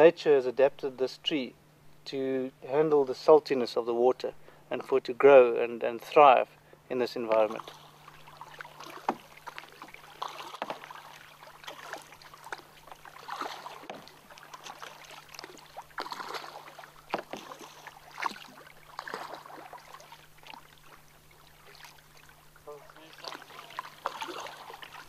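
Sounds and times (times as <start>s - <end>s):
paddles splashing in water: 7.3s - 25.0s.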